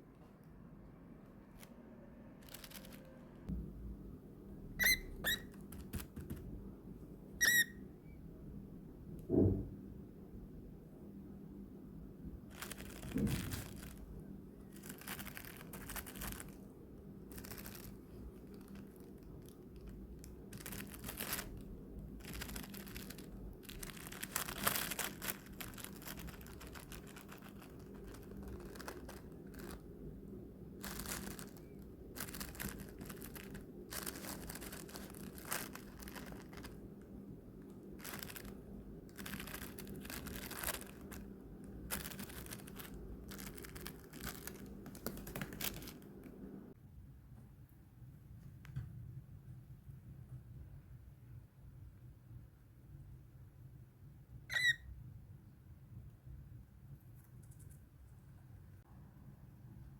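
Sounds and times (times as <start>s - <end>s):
faint low hum: 0.0s - 59.9s
crinkling and tearing: 2.4s - 3.2s, 12.5s - 16.6s, 17.3s - 30.0s, 30.8s - 46.4s.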